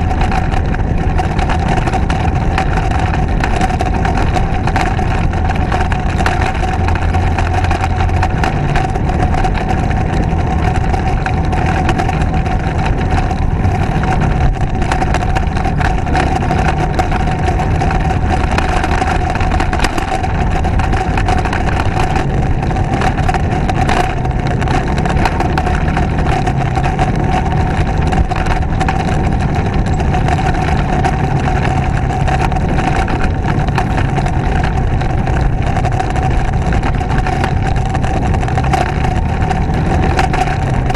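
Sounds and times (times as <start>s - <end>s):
motorcycle engine running: 0.0s - 40.9s
wind rush on microphone: 0.0s - 40.9s.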